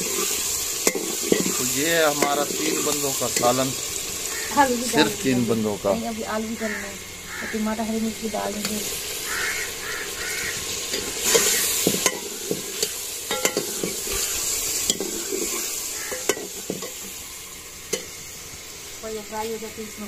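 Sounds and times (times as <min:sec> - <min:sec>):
curry sizzling in a pot: 0:00.0 - 0:20.0
metal ladle stirring and clinking: 0:13.3 - 0:14.0.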